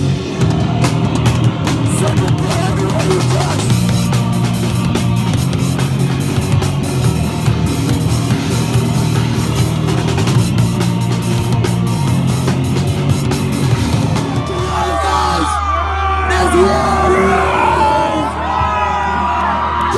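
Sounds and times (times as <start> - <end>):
pounding drum kit: 0.0 - 15.6
heavy rock music: 0.0 - 19.9
shifting bass line: 0.0 - 19.9.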